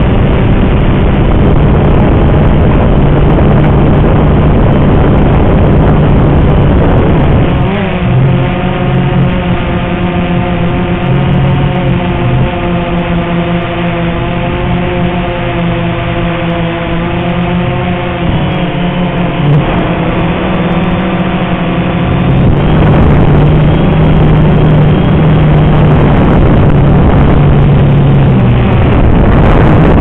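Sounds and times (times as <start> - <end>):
quadcopter motors humming: 0.0 - 30.0
wind buffeting microphone: 0.0 - 30.0.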